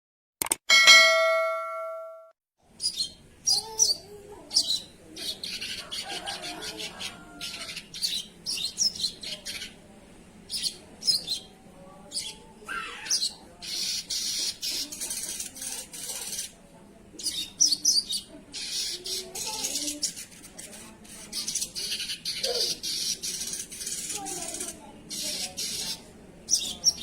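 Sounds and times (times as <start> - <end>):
bird high chirps: 2.8 - 5.8
harsh hissing bird chatter: 10.5 - 16.6, 17.2 - 27.0.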